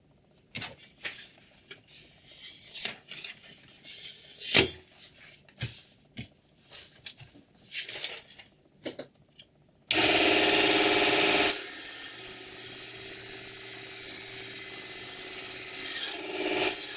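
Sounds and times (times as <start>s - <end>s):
electric knife sharpener humming: 9.9s - 16.9s.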